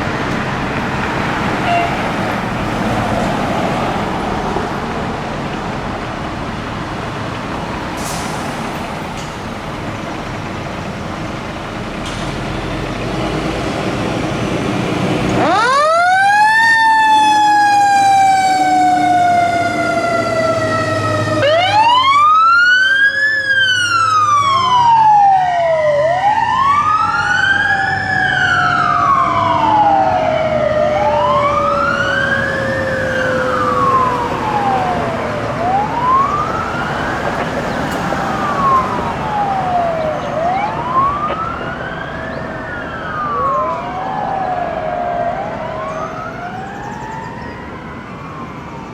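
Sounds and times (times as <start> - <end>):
fire engine siren wailing: 0.0 - 48.9
second siren falling in pitch: 15.4 - 48.9.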